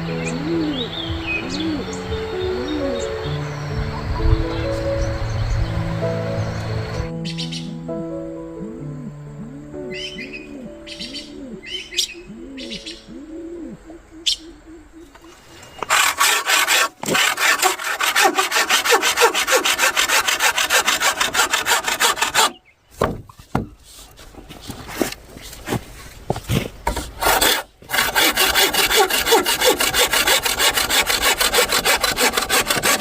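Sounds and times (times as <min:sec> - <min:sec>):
hand saw cutting wood: 0:15.6 - 0:22.6, 0:26.9 - 0:33.0
knocks: 0:23.0 - 0:23.8.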